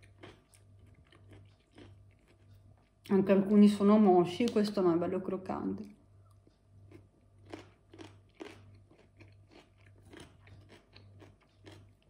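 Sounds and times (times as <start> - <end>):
chewing crisp cucumber: 0.0 - 3.1, 6.2 - 12.0.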